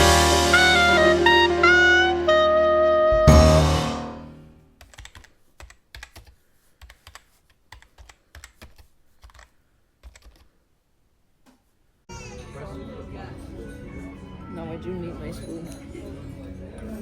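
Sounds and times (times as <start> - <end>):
held music note: 0.0 - 4.7.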